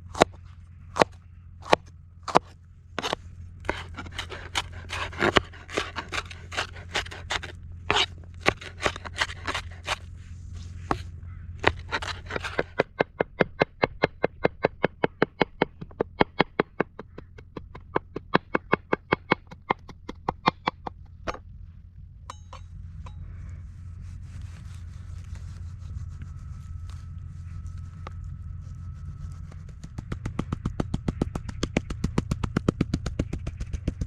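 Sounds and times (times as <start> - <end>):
knife chopping on cutting board: 1.0 - 10.0, 11.6 - 13.5.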